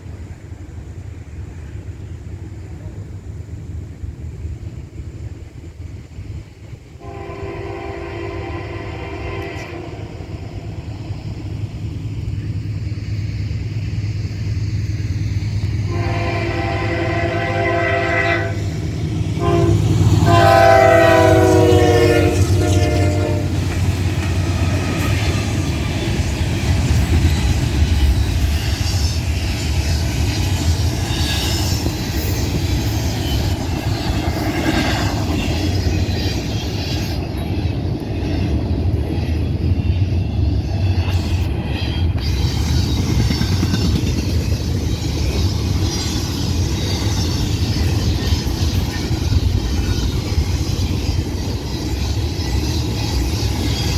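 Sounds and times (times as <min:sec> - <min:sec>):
diesel locomotive rumble: 0:00.0 - 0:53.9
train horn: 0:07.0 - 0:10.3, 0:15.8 - 0:23.8
train wheels clattering: 0:08.6 - 0:53.9.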